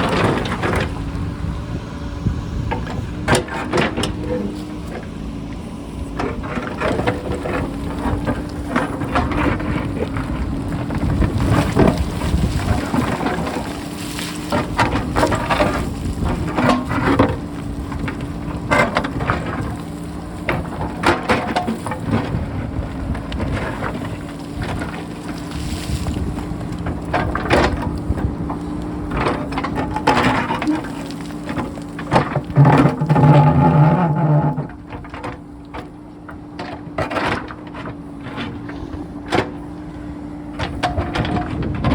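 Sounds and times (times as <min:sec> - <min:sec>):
diesel engine running: 0:00.0 - 0:41.9
wind buffeting microphone: 0:00.9 - 0:03.3, 0:05.6 - 0:21.0, 0:22.0 - 0:29.2, 0:40.0 - 0:41.9
rocks clattering: 0:06.3 - 0:35.2.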